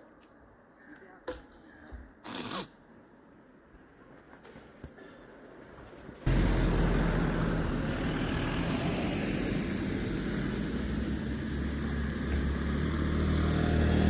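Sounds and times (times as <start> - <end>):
vehicle engine droning: 6.3 - 14.0.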